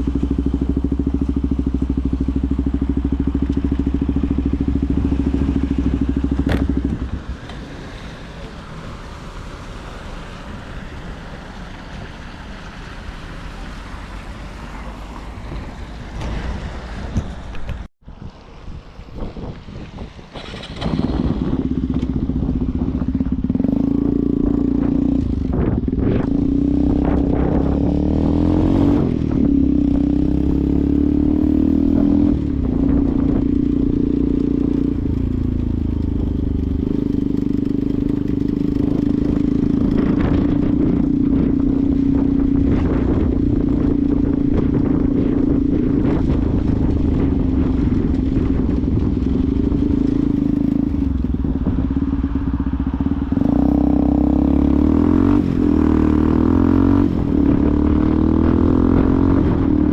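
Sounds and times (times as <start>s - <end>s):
motorcycle engine running: 0.0s - 7.4s, 20.4s - 59.9s.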